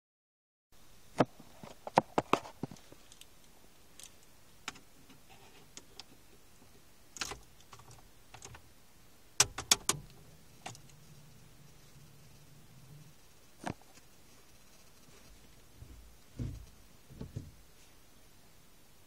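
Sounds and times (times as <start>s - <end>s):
sharp clicks and knocks: 9.4s - 11.0s, 15.8s - 17.6s.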